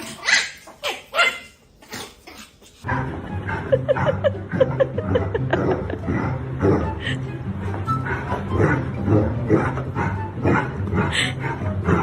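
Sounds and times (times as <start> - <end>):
dog barking: 0.2 - 1.5.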